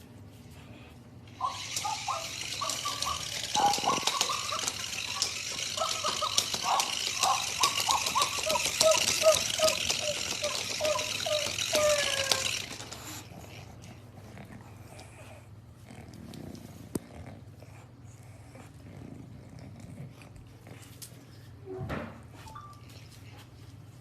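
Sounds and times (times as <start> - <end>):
puppy whining: 1.3 - 15.5.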